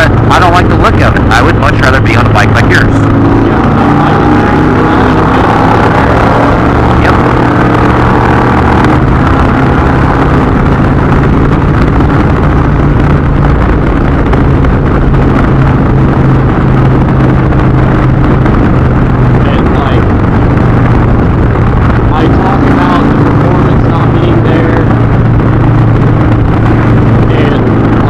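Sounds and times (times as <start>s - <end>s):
motorcycle engine running: 0.0s - 28.0s
wind and road noise: 0.0s - 28.0s.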